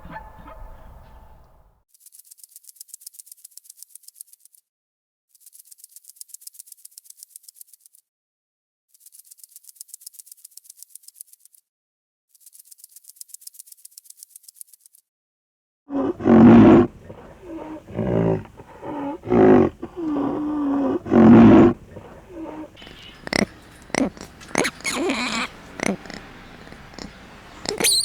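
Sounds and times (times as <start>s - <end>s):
animal calling: 15.9s - 28.0s.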